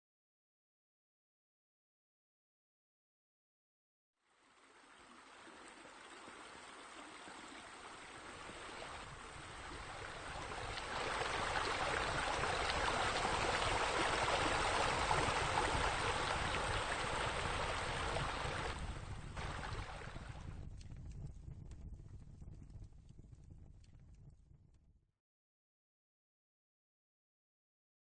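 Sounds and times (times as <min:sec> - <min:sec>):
water pouring and splashing: 0:04.3 - 0:20.6.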